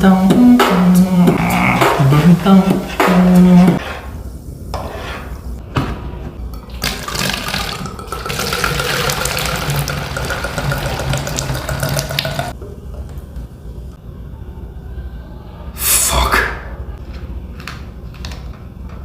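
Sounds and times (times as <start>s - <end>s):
tap water running: 6.5s - 12.6s.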